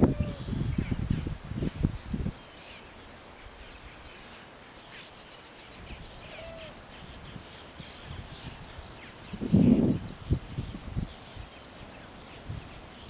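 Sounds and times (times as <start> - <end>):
wind buffeting microphone: 0.0 - 2.5, 5.7 - 13.0
birds chirping: 0.0 - 13.0
faint insect drone: 0.0 - 13.0.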